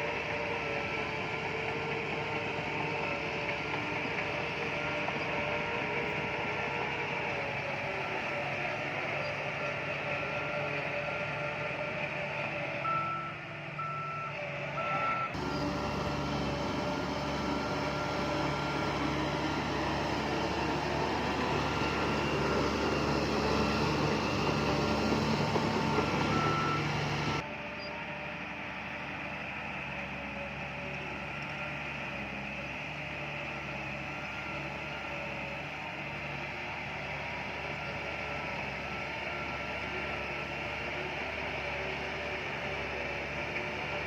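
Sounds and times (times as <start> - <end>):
heavy machine engine running: 0.0 - 44.0
reversing alarm beeping: 12.8 - 27.9.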